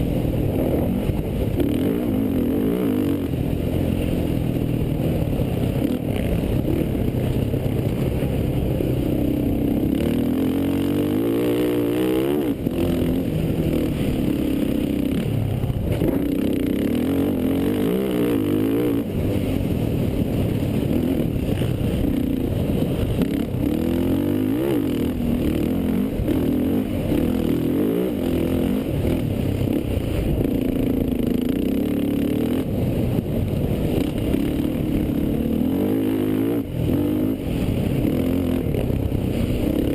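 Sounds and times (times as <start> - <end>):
quad engine revving: 9.2 - 15.3.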